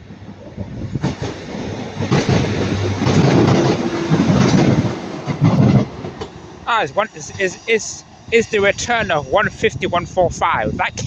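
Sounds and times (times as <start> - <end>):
wheels clicking over rail joints: 0.1 - 6.7
diesel engine hum: 0.1 - 8.3.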